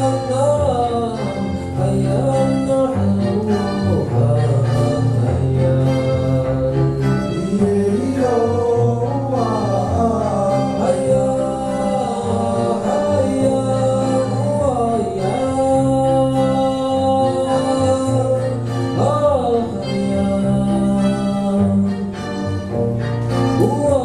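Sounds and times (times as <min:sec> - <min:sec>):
man singing: 0:00.0 - 0:22.5, 0:23.4 - 0:24.0
bass line: 0:00.0 - 0:24.0
guitar: 0:00.0 - 0:24.0.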